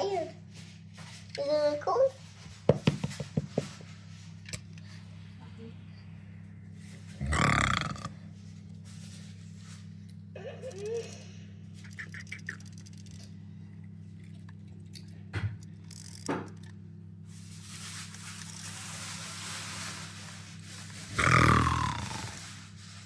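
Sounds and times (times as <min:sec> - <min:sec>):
loud lion-like roar: 0:07.2 - 0:08.2, 0:21.1 - 0:22.6
toys clicking: 0:11.8 - 0:13.3.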